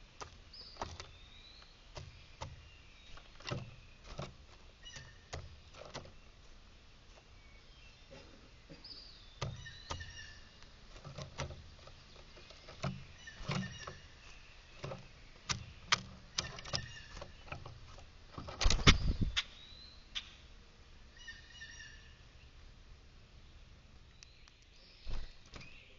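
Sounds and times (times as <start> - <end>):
sharp taps and knocks: 1.9 - 6.2, 9.4 - 14.1, 14.8 - 19.0
faint bird chirps: 4.8 - 6.4, 7.2 - 10.6, 11.8 - 17.6, 18.8 - 20.5, 21.1 - 22.6.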